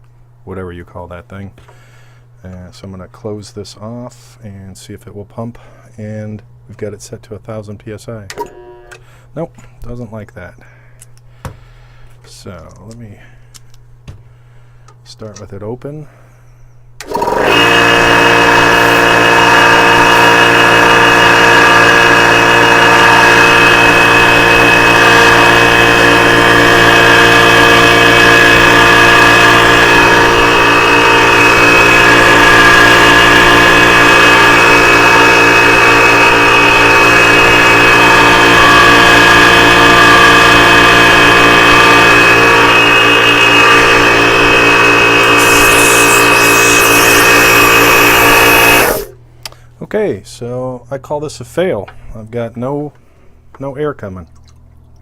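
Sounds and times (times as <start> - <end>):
air compressor running loudly: 17.0 - 49.2.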